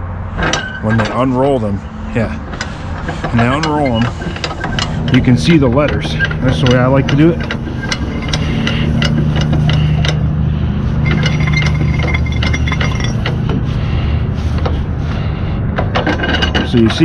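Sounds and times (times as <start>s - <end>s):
low engine hum: 0.0s - 17.0s
strap winder metallic clinks: 2.6s - 10.2s, 11.0s - 13.4s.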